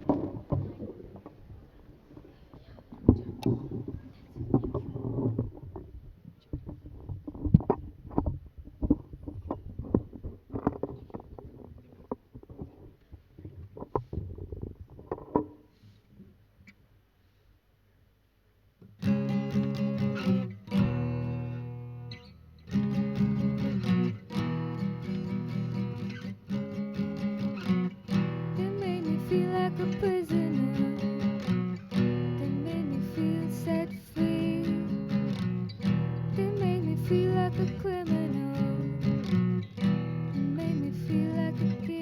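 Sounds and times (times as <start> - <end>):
acoustic guitar strumming chords: 19.0 - 42.0.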